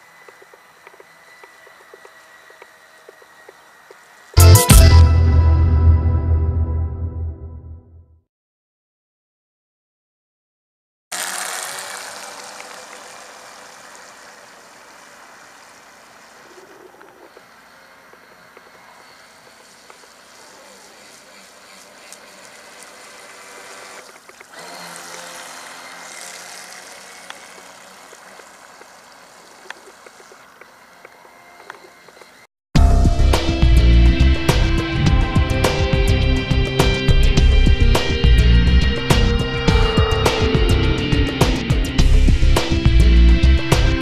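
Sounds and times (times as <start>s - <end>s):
rc boat electric motor whine: 0.0s - 4.6s, 11.1s - 41.3s
water spray hissing: 11.1s - 31.2s.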